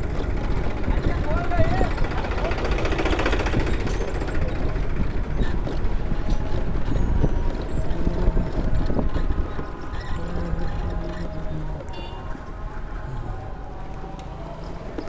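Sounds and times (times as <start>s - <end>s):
knocks and rattles: 0.0s - 11.2s
vehicle rumbling along road: 0.0s - 15.0s
wind buffeting microphone: 0.0s - 15.0s.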